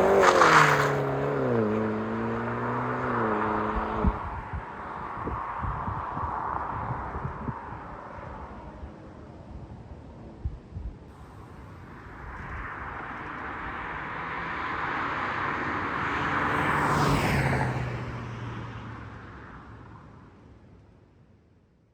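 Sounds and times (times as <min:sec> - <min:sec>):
vehicle passing by: 0:00.0 - 0:08.4, 0:11.2 - 0:19.6.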